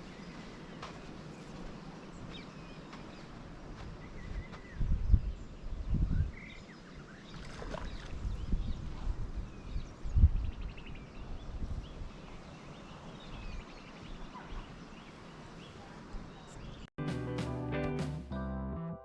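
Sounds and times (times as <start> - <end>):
wind buffeting microphone: 0.0 - 14.8
small birds chirping: 0.0 - 16.9.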